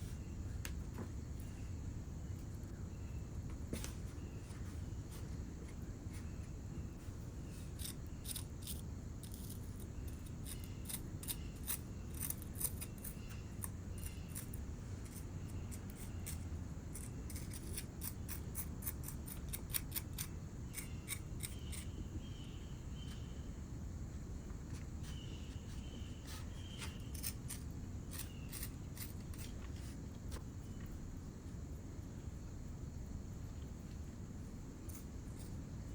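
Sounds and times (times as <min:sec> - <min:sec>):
tools clicking and scraping clay: 0:07.6 - 0:21.9, 0:26.8 - 0:30.9, 0:34.9 - 0:35.6.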